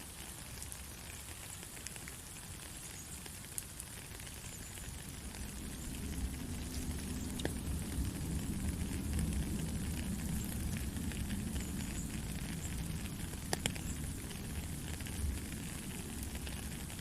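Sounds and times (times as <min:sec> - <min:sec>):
steady rain falling: 0:00.0 - 0:17.0
low rumble: 0:05.4 - 0:15.4.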